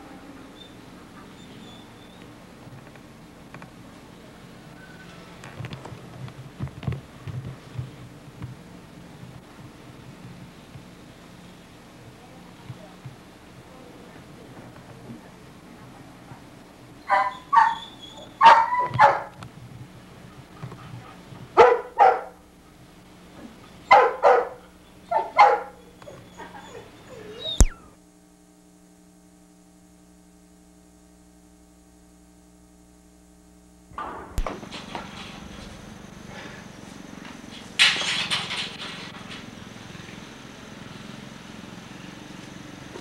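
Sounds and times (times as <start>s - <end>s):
faint steady hum: 0.0s - 43.0s
puppy yipping: 0.6s - 2.2s, 17.0s - 19.3s, 23.8s - 27.9s.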